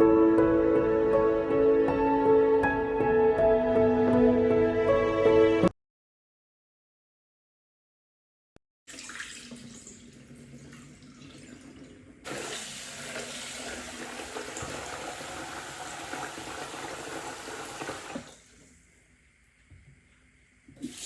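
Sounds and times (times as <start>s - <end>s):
water running from a tap: 8.9s - 18.4s, 20.8s - 21.0s.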